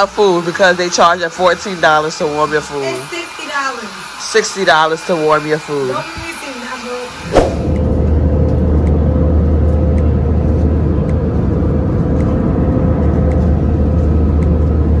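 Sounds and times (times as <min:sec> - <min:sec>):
hair dryer blowing: 0:00.0 - 0:08.0.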